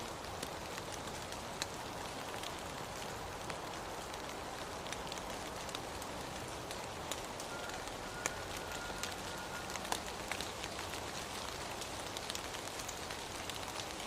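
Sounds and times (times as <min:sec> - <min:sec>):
sharp raindrops striking: 0:00.0 - 0:14.0
steady rain hiss: 0:00.0 - 0:14.0.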